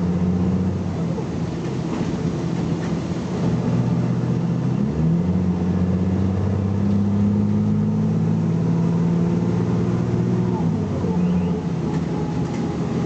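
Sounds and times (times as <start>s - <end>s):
bus engine revving under load: 0.0s - 13.0s.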